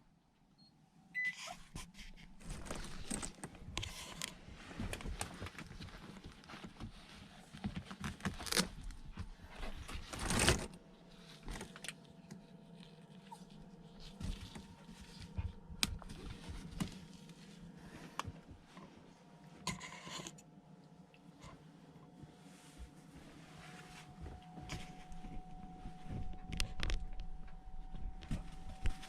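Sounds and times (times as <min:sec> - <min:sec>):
rustling: 0:01.6 - 0:18.2.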